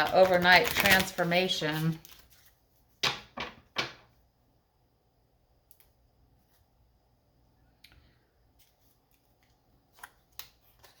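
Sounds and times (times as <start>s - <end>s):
cards being handled: 0.0s - 2.6s.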